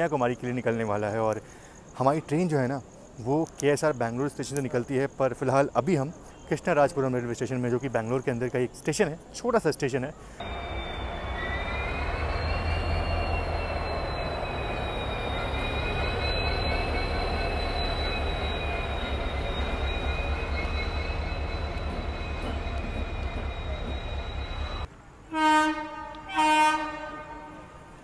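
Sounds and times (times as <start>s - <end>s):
high wavering whine: 10.4s - 24.9s
locomotives rumbling past: 10.4s - 24.9s
train horn blasts: 10.4s - 28.0s.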